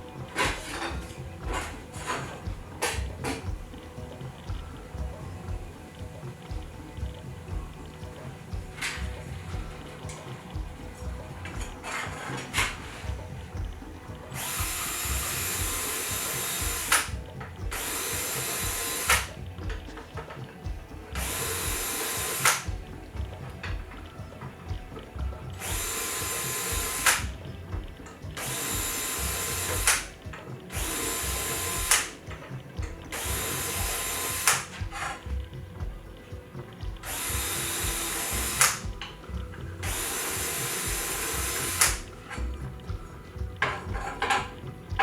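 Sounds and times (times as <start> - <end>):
power drill bursts: 14.4 - 19.3, 21.2 - 22.8, 25.6 - 27.4, 28.4 - 32.3, 33.1 - 35.2, 37.0 - 38.8, 39.8 - 42.1.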